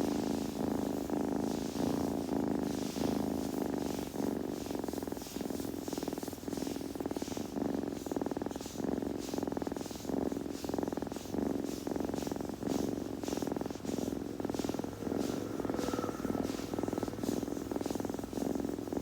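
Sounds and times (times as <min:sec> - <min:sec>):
kitten purring: 0:00.0 - 0:19.0.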